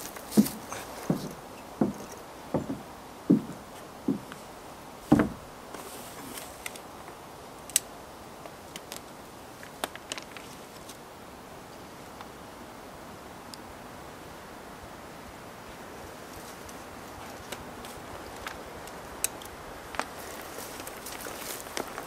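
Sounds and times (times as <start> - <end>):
dull knocks on wood: 0.4 - 4.4, 5.1 - 5.4.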